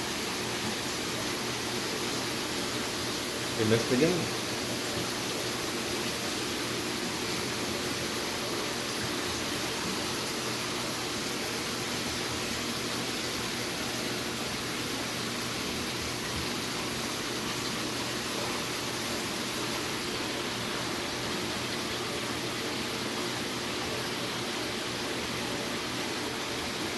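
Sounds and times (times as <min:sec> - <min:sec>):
aquarium water circulating: 0:00.0 - 0:26.9.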